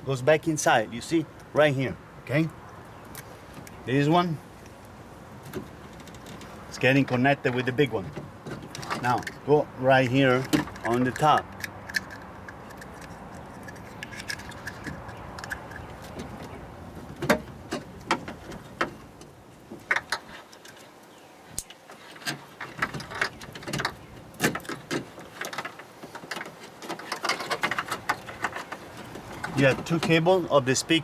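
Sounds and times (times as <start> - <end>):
clicks of plastic connectors: 8.5 - 16.5.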